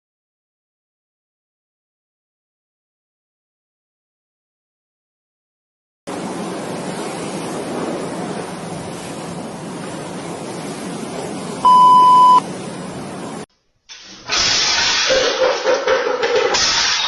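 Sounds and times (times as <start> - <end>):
electronic beep: 11.6 - 12.4.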